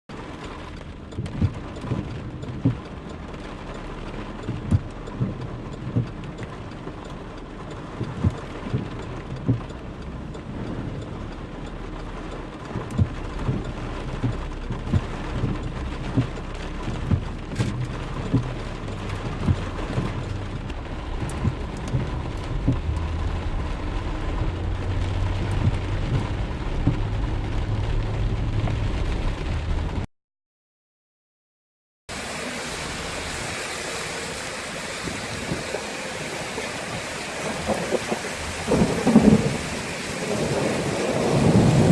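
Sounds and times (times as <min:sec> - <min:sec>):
heavy rain falling: 0:00.1 - 0:30.1, 0:32.1 - 0:41.9
low rumble: 0:12.7 - 0:30.1.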